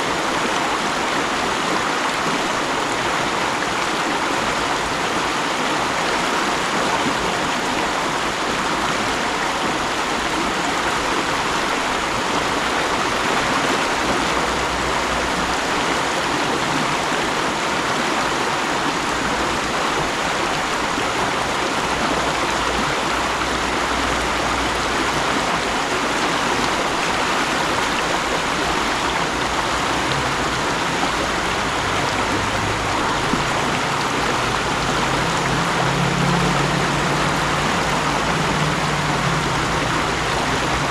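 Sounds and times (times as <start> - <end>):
stream rushing over rocks: 0.0 - 40.9
low engine hum: 19.2 - 40.9.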